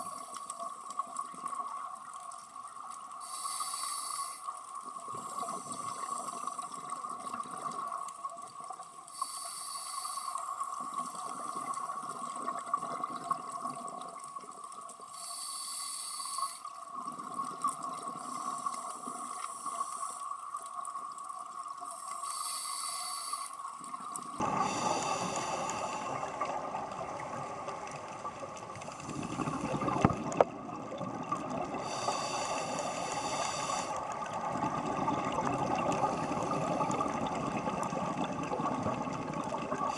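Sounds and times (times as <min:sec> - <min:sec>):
exhaled bubbles hissing: 0:03.1 - 0:08.0, 0:09.1 - 0:14.1, 0:21.9 - 0:39.9
diver breathing through regulator: 0:03.2 - 0:04.4, 0:09.2 - 0:10.4, 0:15.2 - 0:16.6, 0:22.2 - 0:23.6, 0:24.4 - 0:30.4, 0:31.6 - 0:38.4
steady hum: 0:24.4 - 0:30.5.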